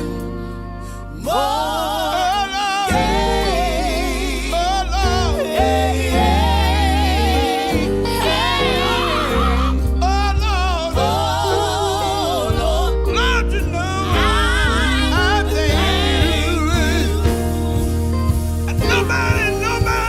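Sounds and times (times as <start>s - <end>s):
band with steady bass line: 0.0s - 20.0s
gospel group singing: 0.0s - 20.0s.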